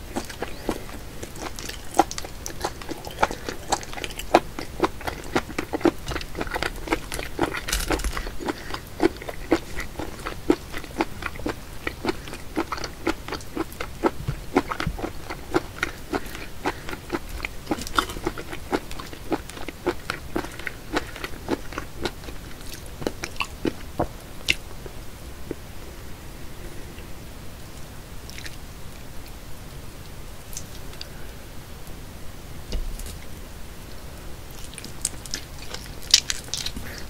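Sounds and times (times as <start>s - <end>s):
wet chewing mouth clicks: 0.0s - 23.5s.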